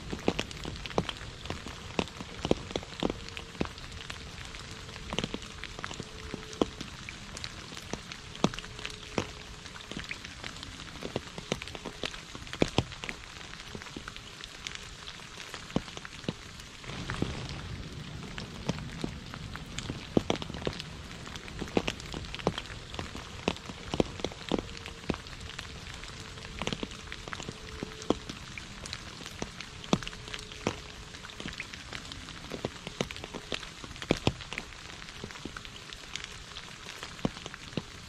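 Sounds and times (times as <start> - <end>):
rain on puddle and leaves: 0.0 - 38.0
low rumble: 16.8 - 31.0.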